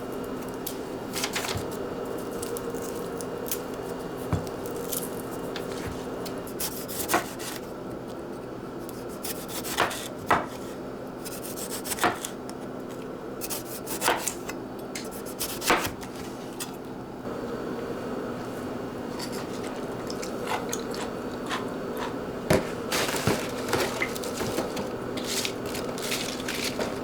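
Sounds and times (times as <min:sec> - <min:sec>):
knife on cutting board: 0:05.6 - 0:07.6, 0:08.9 - 0:12.3, 0:13.4 - 0:16.8.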